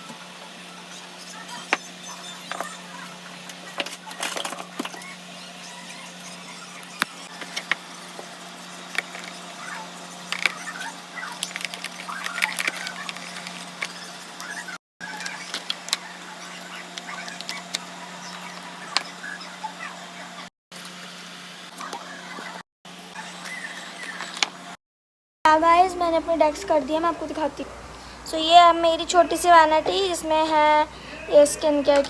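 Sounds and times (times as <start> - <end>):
items clicking and tapping on plastic: 11.4 - 14.5
steady low hum: 25.5 - 32.0.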